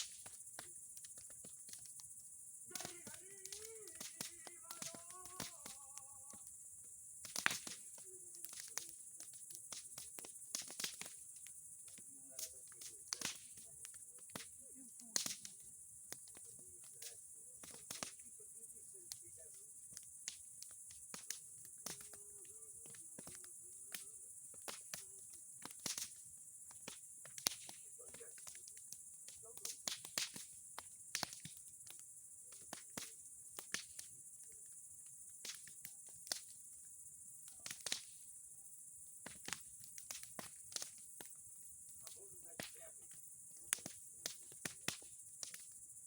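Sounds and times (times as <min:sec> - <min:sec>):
bonfire crackling and popping: 0:00.0 - 0:46.0.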